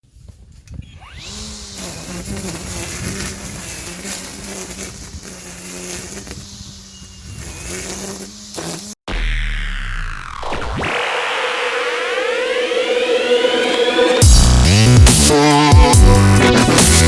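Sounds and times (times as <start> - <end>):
string trimmer electric whine: 0.6 - 17.0.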